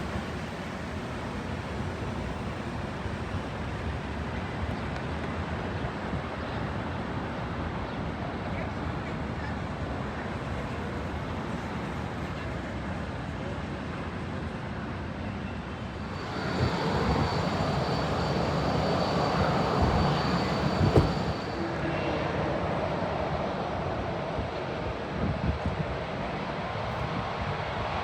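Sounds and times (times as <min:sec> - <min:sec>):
airliner engines rumbling: 0:15.6 - 0:25.2
thin high whine: 0:16.0 - 0:21.7
brief knock: 0:20.7 - 0:21.3.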